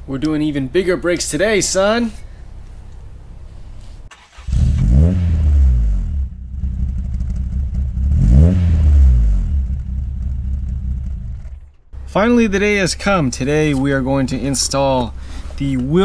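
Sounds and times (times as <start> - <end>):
car engine idling and revving: 4.1 - 11.9.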